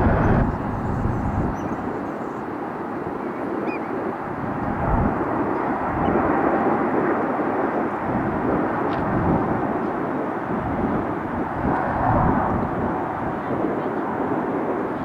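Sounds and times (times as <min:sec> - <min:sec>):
jet engine hiss: 0:00.0 - 0:04.8
wind buffeting microphone: 0:00.0 - 0:15.0.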